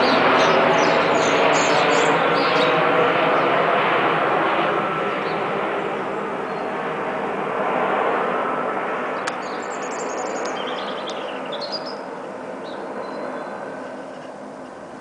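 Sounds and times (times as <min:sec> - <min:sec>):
small birds chirping: 0:00.0 - 0:02.8, 0:09.2 - 0:15.0
jet airliner rushing: 0:00.0 - 0:15.0.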